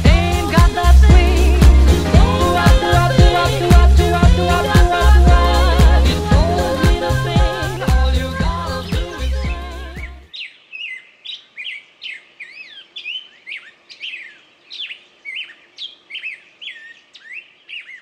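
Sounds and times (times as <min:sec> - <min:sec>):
music: 0:00.0 - 0:10.3
birds chirping: 0:00.0 - 0:18.0.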